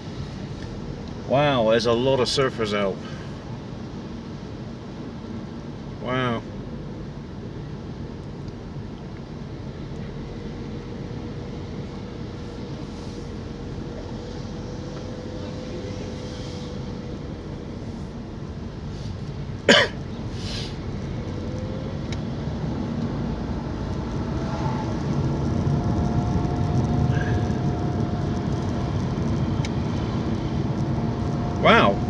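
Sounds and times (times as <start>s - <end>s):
car engine and road rumble: 0.0s - 32.0s
person coughing: 19.7s - 20.0s.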